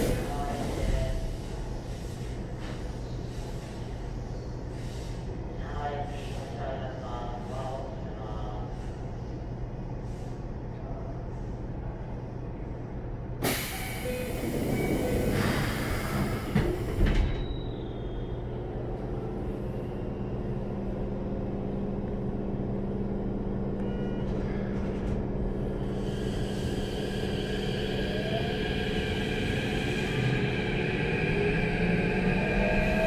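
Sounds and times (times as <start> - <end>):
train equipment hum: 11.3 - 33.0.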